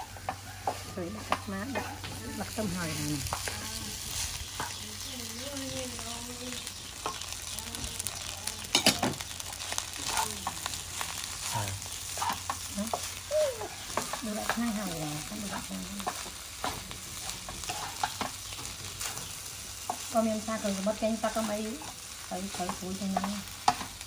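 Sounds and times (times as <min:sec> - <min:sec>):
rice sizzling in a pan: 0:00.0 - 0:24.0
wooden spatula scraping pan: 0:00.2 - 0:04.9, 0:13.9 - 0:18.4.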